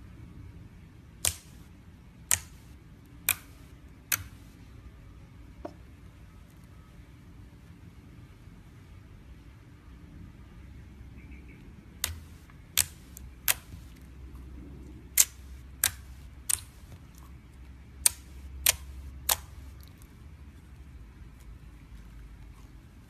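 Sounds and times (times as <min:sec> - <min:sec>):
low steady rumble: 0:00.0 - 0:23.0
sharp clicks: 0:01.2 - 0:01.6, 0:02.3 - 0:04.4, 0:12.0 - 0:14.0, 0:15.1 - 0:16.9, 0:18.0 - 0:19.9.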